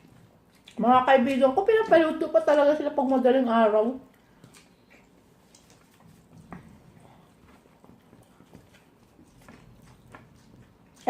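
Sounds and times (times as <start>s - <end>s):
person chewing: 0.0s - 0.8s, 4.1s - 11.0s.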